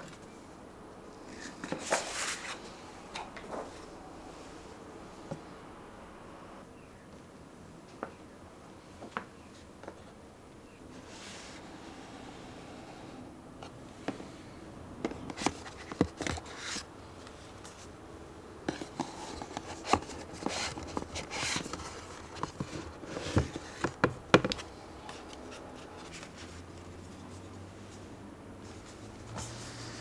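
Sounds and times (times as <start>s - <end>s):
packaging rustling: 18.7s - 26.4s.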